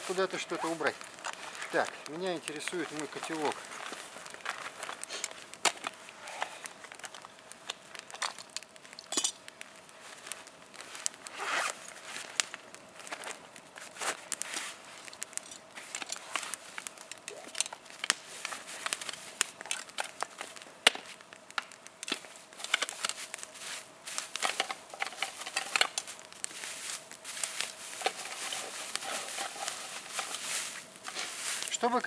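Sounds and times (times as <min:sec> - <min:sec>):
plastic bag rustling: 0:00.0 - 0:09.0, 0:21.9 - 0:32.0.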